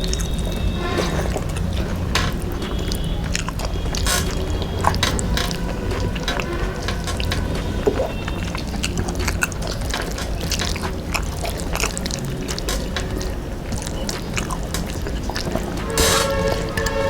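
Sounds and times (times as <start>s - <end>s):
chewing and mouth smacks: 7.9s - 15.8s.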